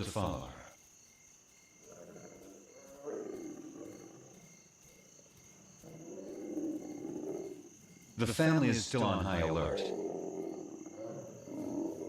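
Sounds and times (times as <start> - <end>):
crickets chirping: 0.0 - 12.0
lions calling softly: 1.8 - 4.5, 9.2 - 12.0.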